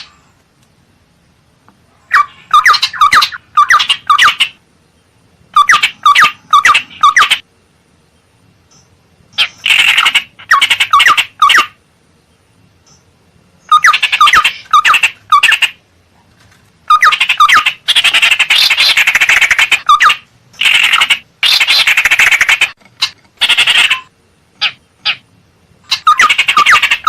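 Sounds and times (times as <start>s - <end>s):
bird harsh rapid chattering calls: 2.1s - 4.6s, 5.5s - 7.4s, 9.4s - 11.8s, 13.7s - 15.8s, 16.9s - 27.0s.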